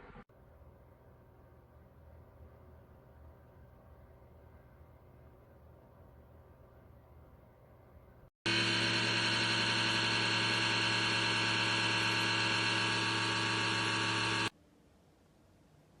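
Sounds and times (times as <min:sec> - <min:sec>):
dehumidifier motor hum: 0:08.5 - 0:14.5.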